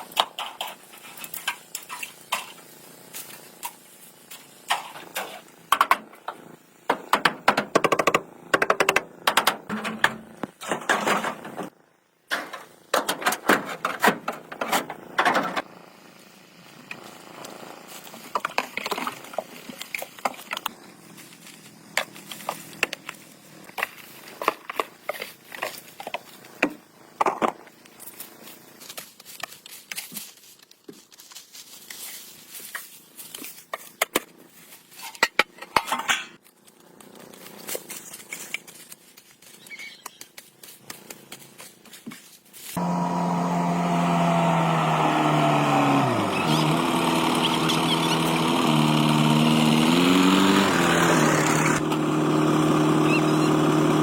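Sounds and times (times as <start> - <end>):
hand tools clicking and knocking: 6.9 - 11.6.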